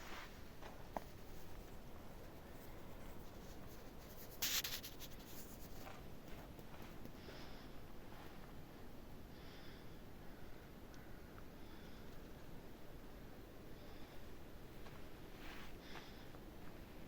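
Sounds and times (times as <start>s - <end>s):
low background hiss: 0.0s - 17.0s
rustling scrape: 3.2s - 6.0s.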